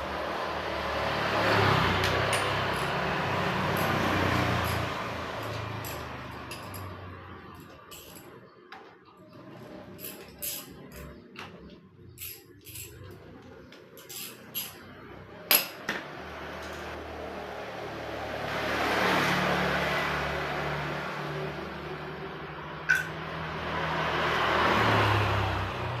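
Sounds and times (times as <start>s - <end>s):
metallic clinks of tools: 2.0s - 8.4s, 9.9s - 15.8s, 22.9s - 23.2s.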